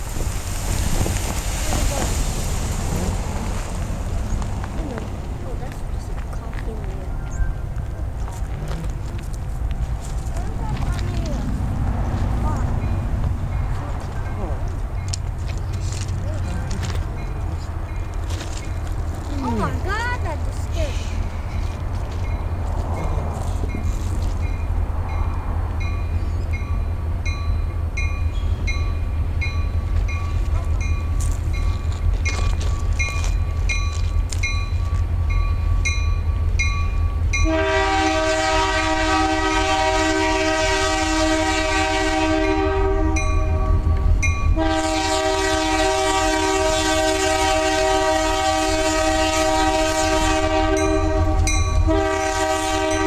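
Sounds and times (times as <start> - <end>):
diesel locomotive engine rumble: 0.0 - 53.0
train horn chord blasts: 37.3 - 53.0.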